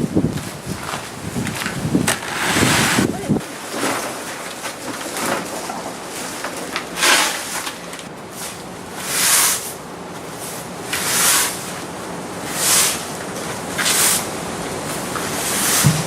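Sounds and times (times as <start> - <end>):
shovel scraping hard ground: 0.3 - 7.8, 8.4 - 9.8, 10.4 - 11.8, 12.5 - 13.1, 13.8 - 14.3, 15.2 - 16.0.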